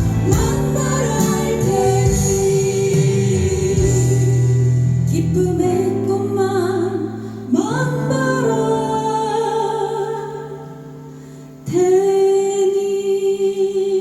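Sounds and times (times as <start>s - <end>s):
instrumental accompaniment: 0.0s - 5.4s
women singing with vibrato: 0.0s - 14.0s.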